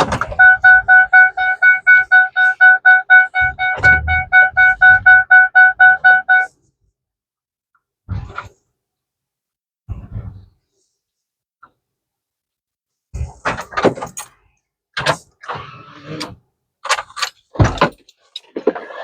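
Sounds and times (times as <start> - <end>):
rapid electronic beeping: 0.4 - 6.5.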